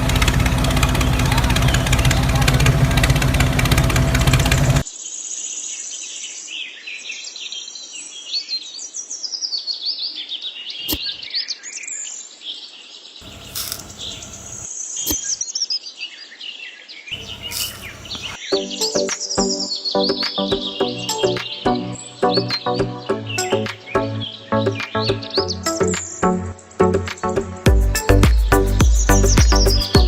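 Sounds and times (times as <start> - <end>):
loud mechanical hum: 0.0 - 4.8, 13.2 - 14.7, 17.2 - 18.4
small birds chirping: 4.2 - 21.5, 28.3 - 30.0
sharp clicks: 13.2 - 15.3
short bursts of noise: 13.2 - 15.3.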